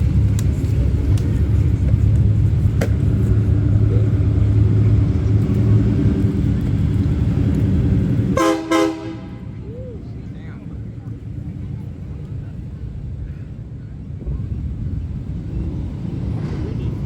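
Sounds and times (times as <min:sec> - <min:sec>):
truck engine rumbling: 0:00.0 - 0:17.0
vehicle horn honking: 0:08.4 - 0:09.4.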